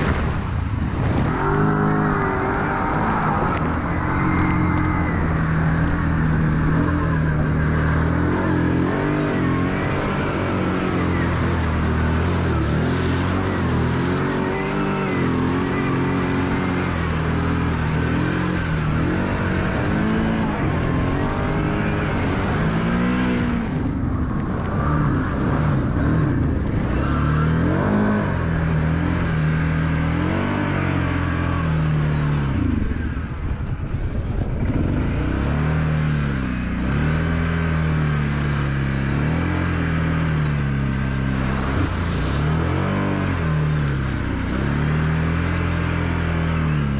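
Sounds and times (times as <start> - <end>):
engine revving: 0.0 - 46.9.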